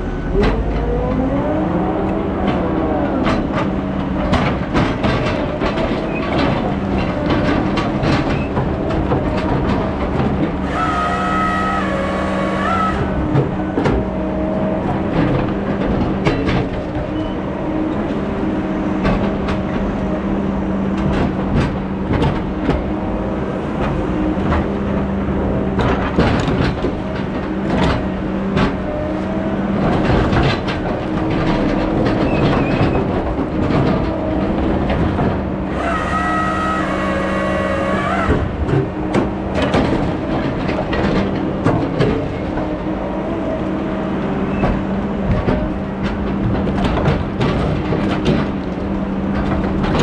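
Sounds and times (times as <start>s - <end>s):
heavy machine engine running: 0.0s - 50.0s
metal clanks and knocks: 2.4s - 10.8s, 25.7s - 35.6s, 38.1s - 42.9s, 44.5s - 50.0s.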